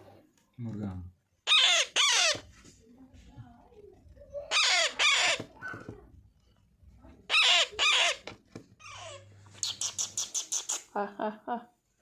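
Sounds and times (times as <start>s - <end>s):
parrot squawking: 1.4s - 2.6s, 4.3s - 6.0s, 7.2s - 11.0s.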